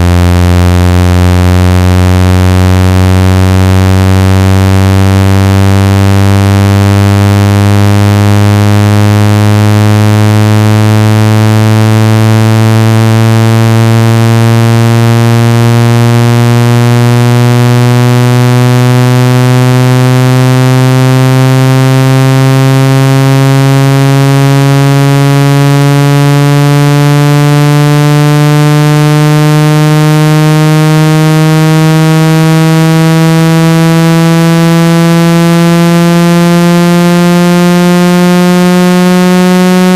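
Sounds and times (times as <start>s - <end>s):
buzzy synthesized tone gliding upward: 23.2s - 39.9s.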